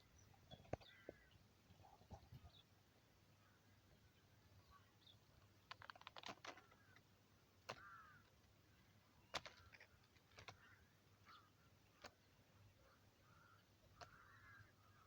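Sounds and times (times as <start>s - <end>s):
faint sharp clicks: 13.8s - 14.2s.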